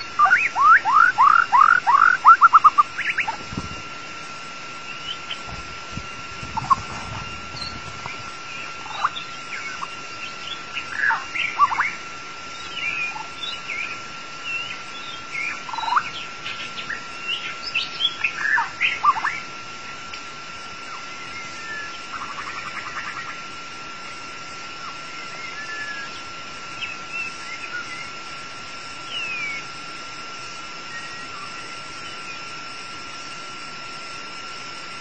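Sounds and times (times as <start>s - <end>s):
bird singing whistled notes: 0.0s - 3.4s, 6.6s - 19.4s, 24.9s - 28.2s, 29.0s - 29.7s, 30.9s - 32.5s.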